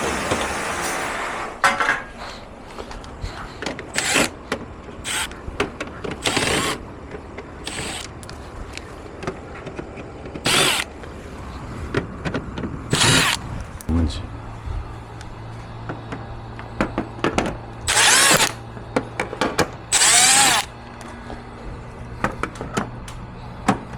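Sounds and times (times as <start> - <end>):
plastic parts scraping and rustling: 0.0 - 13.9
low background rumble: 2.5 - 23.9.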